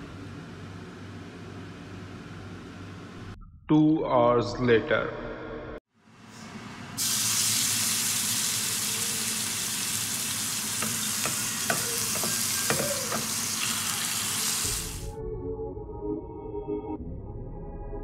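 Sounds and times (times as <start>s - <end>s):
chicken sizzling on griddle: 7.0s - 15.0s
soft ambient music: 15.0s - 18.0s.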